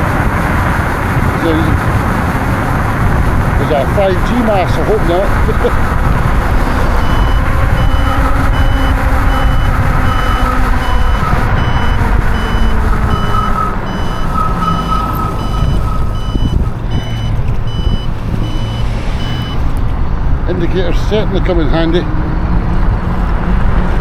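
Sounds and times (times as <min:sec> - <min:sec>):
wind rumble on microphone: 0:00.0 - 0:24.0
turn signal beeping: 0:04.3 - 0:20.4.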